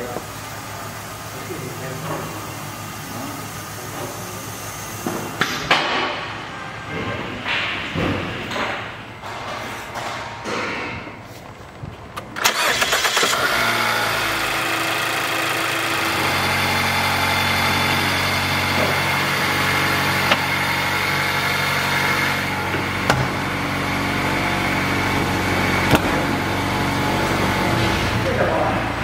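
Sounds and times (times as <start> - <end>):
car engine starting and idling: 12.1 - 29.0.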